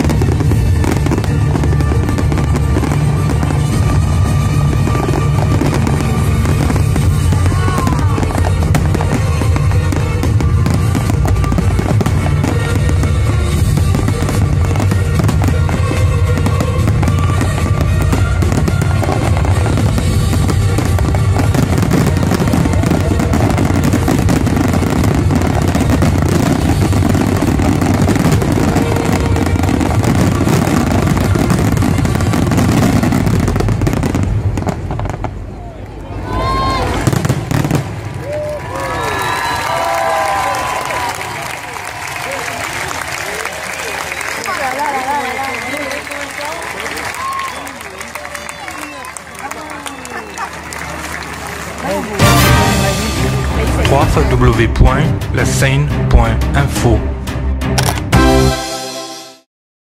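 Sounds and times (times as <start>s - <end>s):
music playing: 0.0s - 35.5s, 50.6s - 59.5s
fireworks bangs and crackling: 0.0s - 57.0s.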